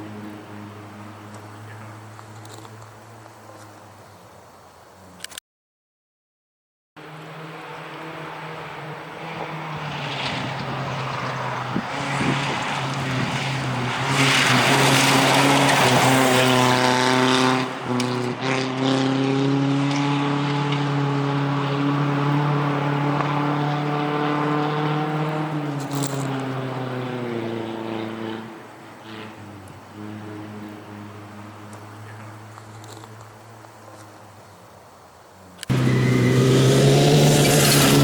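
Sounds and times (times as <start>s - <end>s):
rally car engine droning: 7.0s - 33.2s, 35.6s - 38.0s.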